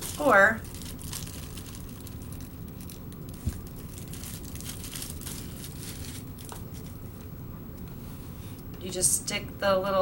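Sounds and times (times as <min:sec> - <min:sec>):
packaging crinkling and rustling: 0:00.0 - 0:07.0.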